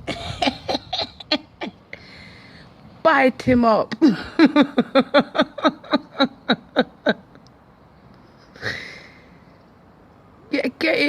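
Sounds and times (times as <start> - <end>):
man laughing: 0.0 - 1.7
short breath: 1.9 - 2.7.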